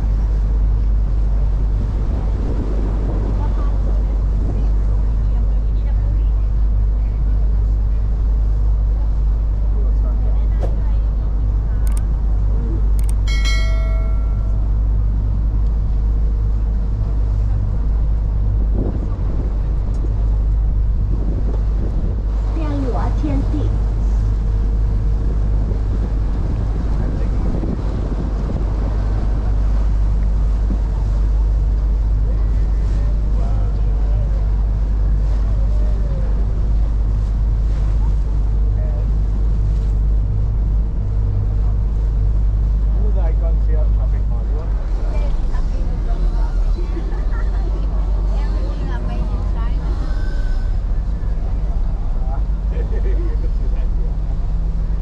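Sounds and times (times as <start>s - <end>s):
ferry engine rumble: 0.0s - 55.0s
water and wind noise: 0.0s - 55.0s
chime tone: 13.3s - 14.8s
faint voices: 41.6s - 55.0s.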